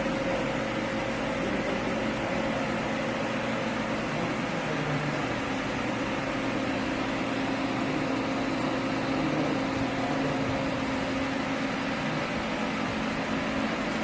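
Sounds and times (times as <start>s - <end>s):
machine hum with low tones: 0.0s - 14.0s.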